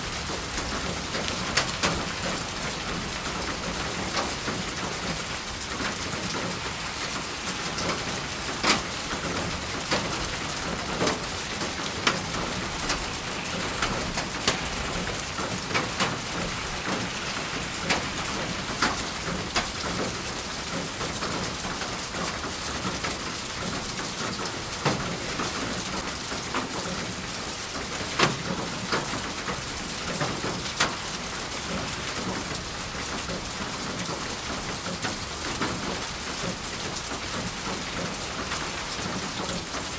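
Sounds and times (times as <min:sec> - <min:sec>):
raindrops striking a surface: 0:00.0 - 0:39.9
steady rain falling: 0:00.0 - 0:39.9.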